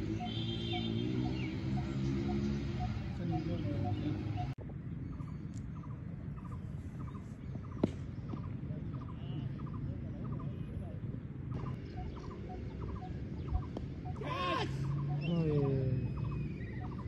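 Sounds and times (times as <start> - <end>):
low outdoor rumble: 3.0 - 17.0
cricket ball hitting bat: 7.8 - 8.5
small bird chirping: 11.5 - 14.2.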